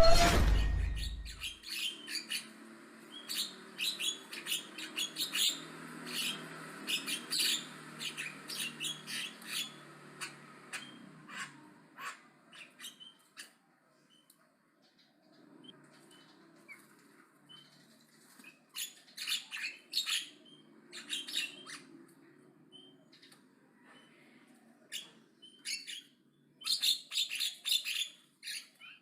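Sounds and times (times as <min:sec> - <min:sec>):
loud low sound: 0:00.0 - 0:01.4.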